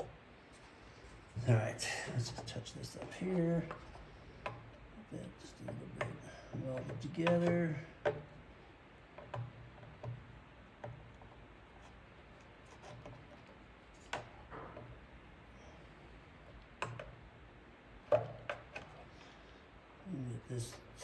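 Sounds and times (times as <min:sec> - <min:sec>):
tool tapping on plastic: 0:02.3 - 0:04.8, 0:05.7 - 0:08.4, 0:09.1 - 0:11.9, 0:16.8 - 0:17.2.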